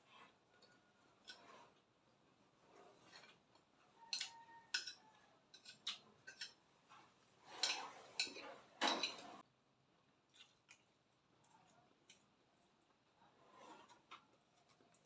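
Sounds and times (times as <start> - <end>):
utensils clinking on a plate: 3.1 - 6.7, 7.4 - 9.4.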